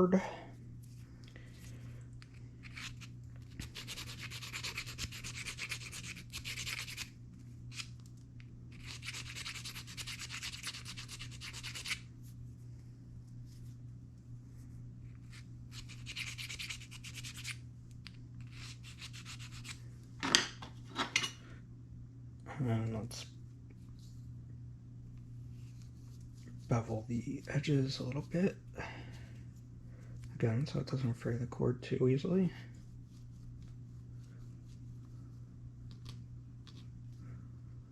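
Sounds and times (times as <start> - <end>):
file rasping inside bead: 2.6 - 7.0, 8.7 - 12.0, 18.4 - 19.8.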